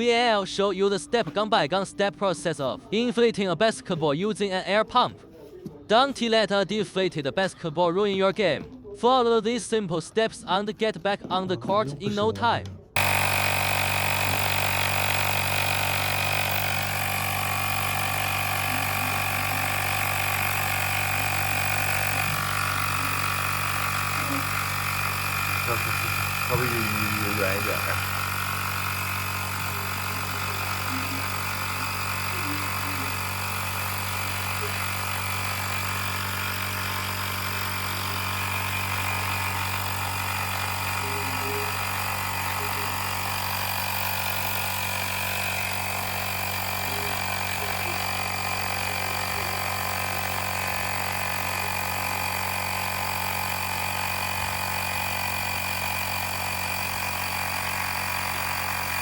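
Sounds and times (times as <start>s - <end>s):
air compressor running: 12.9s - 59.0s.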